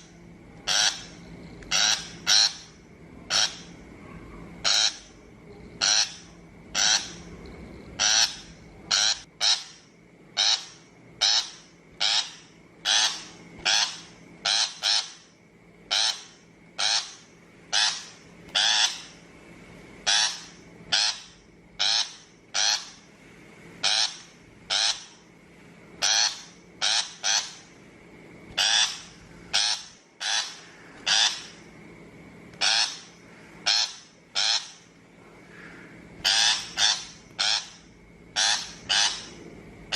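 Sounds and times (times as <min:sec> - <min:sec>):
shrike harsh calls: 0:00.0 - 0:05.2, 0:05.8 - 0:07.3, 0:07.9 - 0:19.2, 0:23.8 - 0:25.3, 0:28.6 - 0:31.7, 0:32.6 - 0:39.9.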